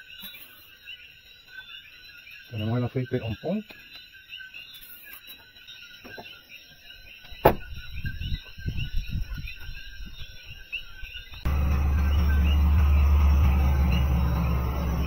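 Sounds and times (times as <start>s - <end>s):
faint high chirping: 0.0s - 15.0s
car engine idling: 11.5s - 15.0s.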